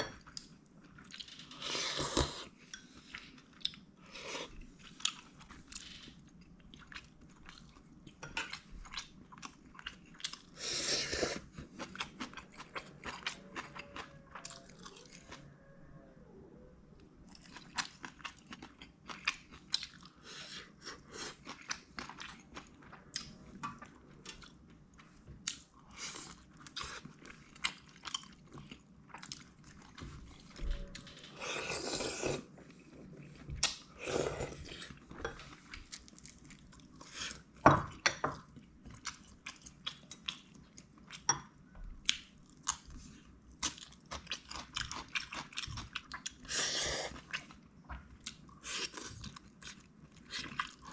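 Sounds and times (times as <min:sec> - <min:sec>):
chewing with crisp crunches: 0:00.2 - 0:16.3, 0:17.2 - 0:50.9.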